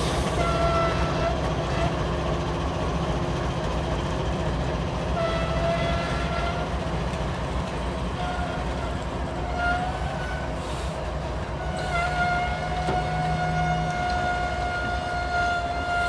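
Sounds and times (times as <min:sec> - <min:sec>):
train rolling on rails: 0:00.0 - 0:16.0
high thin wheel squeals: 0:08.2 - 0:16.0.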